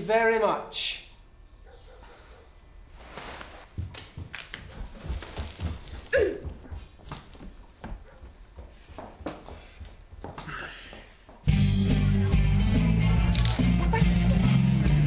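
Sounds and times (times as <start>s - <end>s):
irregular knocks and thumps: 3.7s - 11.5s.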